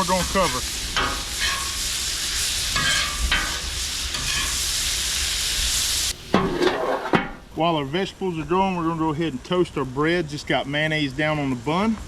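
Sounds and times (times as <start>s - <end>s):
vegetables sizzling on a griddle: 0.0s - 12.0s
metal spatulas scraping and clinking: 0.2s - 1.8s, 2.8s - 4.6s, 6.4s - 7.4s.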